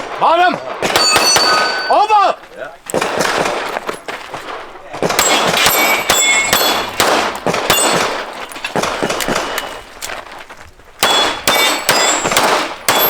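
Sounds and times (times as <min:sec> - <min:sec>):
pistol shots: 0:00.0 - 0:02.0, 0:02.9 - 0:09.8, 0:11.0 - 0:13.0
steel target ringing: 0:00.8 - 0:02.3, 0:05.2 - 0:08.5, 0:11.0 - 0:13.0.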